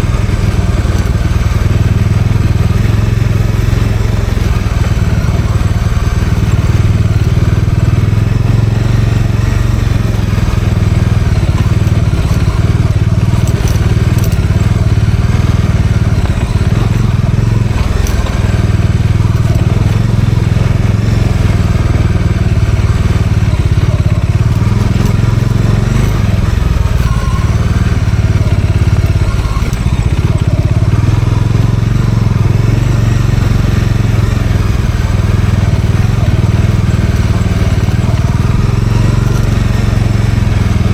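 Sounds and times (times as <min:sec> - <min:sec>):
motorcycle engine running: 0:00.0 - 0:40.9
tyres crunching on rough track: 0:00.0 - 0:40.9.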